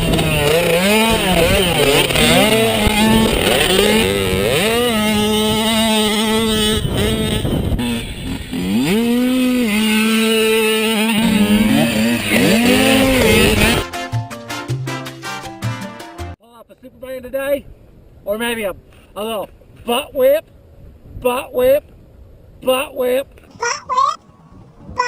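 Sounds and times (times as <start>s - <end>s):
mini motorcycle engine revving: 0.0s - 13.8s.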